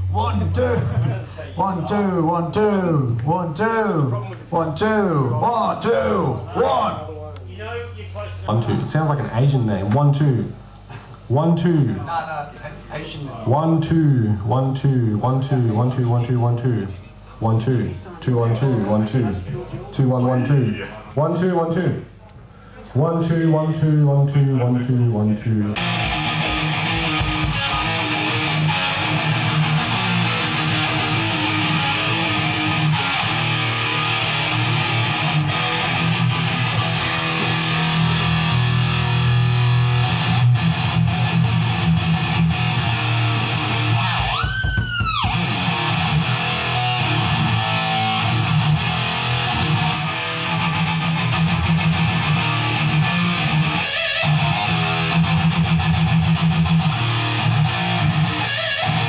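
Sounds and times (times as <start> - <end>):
electric guitar playing: 25.8 - 59.0.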